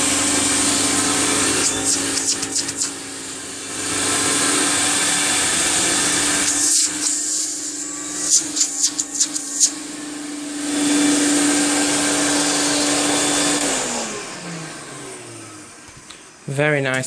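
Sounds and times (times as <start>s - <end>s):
vacuum cleaner motor hum: 0.0s - 17.0s
hose tool scraping a surface: 1.4s - 3.0s, 5.8s - 9.8s.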